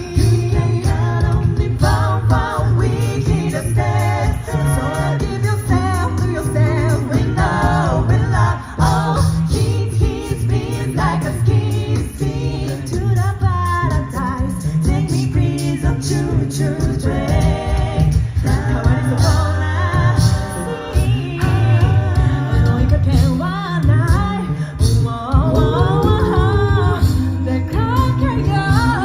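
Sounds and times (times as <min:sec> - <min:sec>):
group singing in harmony: 0:00.0 - 0:29.0
sung bass line: 0:00.0 - 0:29.0
vocal percussion beat: 0:00.0 - 0:29.0.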